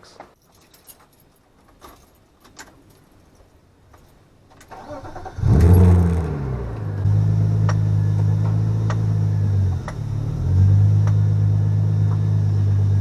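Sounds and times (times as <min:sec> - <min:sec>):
car engine starting and idling: 0:04.6 - 0:13.0.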